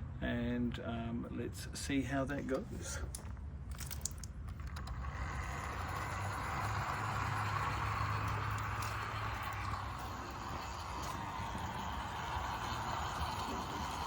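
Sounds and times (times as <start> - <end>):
model train wheels rolling on track: 3.7 - 14.0
model train motor running: 4.6 - 14.0.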